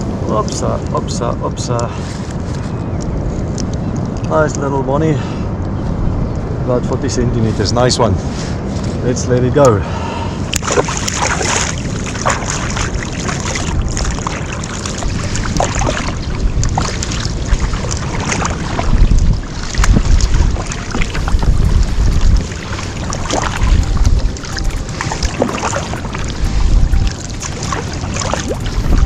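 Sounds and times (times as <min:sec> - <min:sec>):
wind buffeting microphone: 0:00.0 - 0:29.0
water splashing and sloshing: 0:10.4 - 0:29.0.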